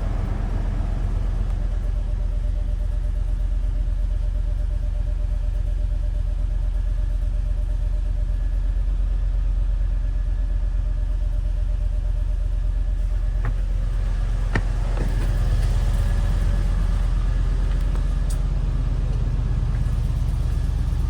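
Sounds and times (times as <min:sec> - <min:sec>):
car engine idling: 0:00.0 - 0:08.4, 0:11.3 - 0:21.0.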